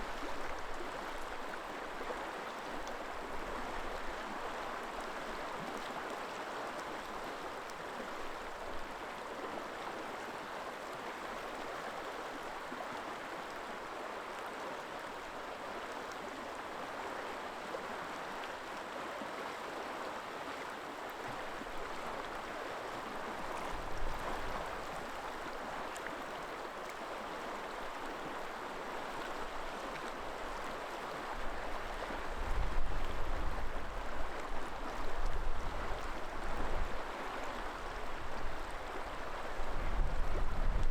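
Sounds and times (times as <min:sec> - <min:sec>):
river water flowing: 0:00.0 - 0:40.9
wind rumbling on microphone: 0:39.5 - 0:40.9.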